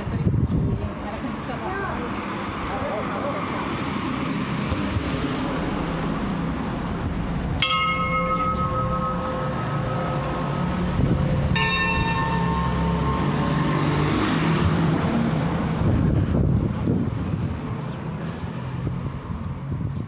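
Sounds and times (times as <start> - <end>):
steady background noise: 0.0 - 19.8
church bell ringing: 6.8 - 15.7.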